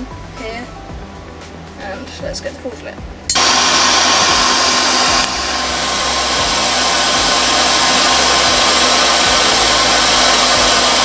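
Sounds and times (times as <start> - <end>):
forced air rushing through forge: 3.3 - 11.0.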